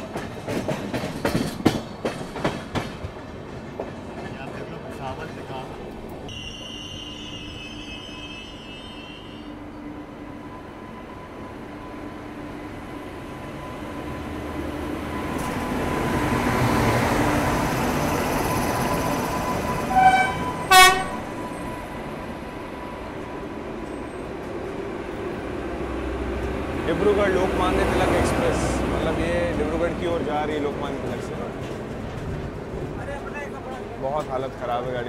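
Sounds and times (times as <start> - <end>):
train rumbling: 0.0 - 35.0
locomotive horn blasts: 6.3 - 9.7, 19.9 - 21.4.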